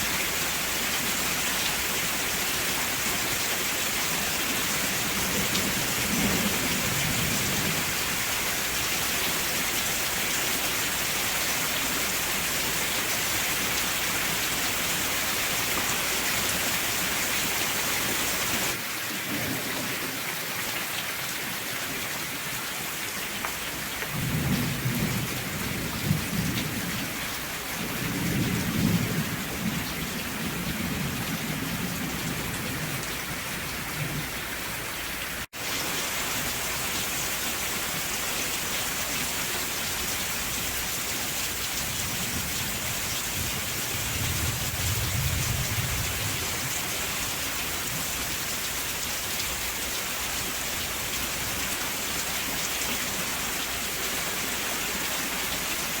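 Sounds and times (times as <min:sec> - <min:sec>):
steady rain: 0:00.0 - 0:56.0
low rolls of thunder: 0:24.1 - 0:27.1, 0:27.8 - 0:33.1, 0:42.0 - 0:46.6.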